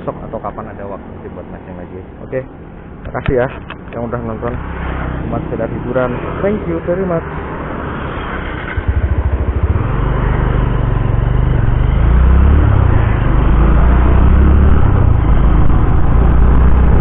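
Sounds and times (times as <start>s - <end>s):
motorcycle engine accelerating: 4.7s - 17.0s.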